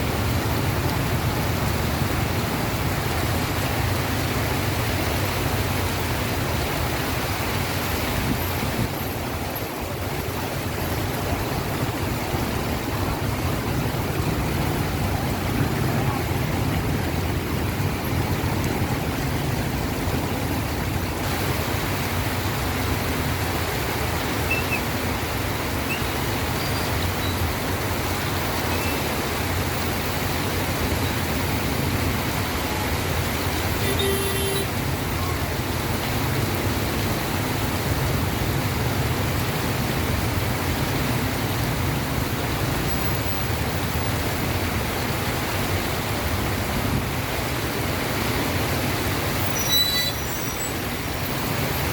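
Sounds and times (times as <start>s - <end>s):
rain: 0.0s - 51.9s
traffic on wet roads: 0.0s - 51.9s.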